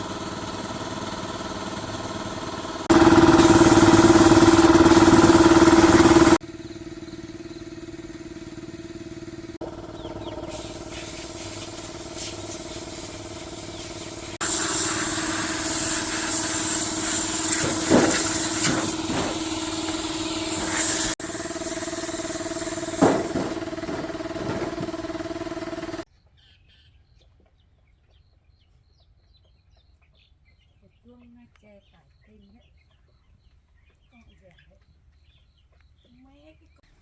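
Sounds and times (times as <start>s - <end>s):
motorcycle engine running: 0.0s - 26.1s.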